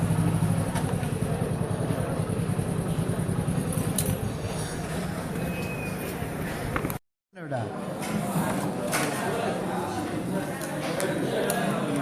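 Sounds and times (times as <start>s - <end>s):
vehicle engine running: 0.0s - 6.9s.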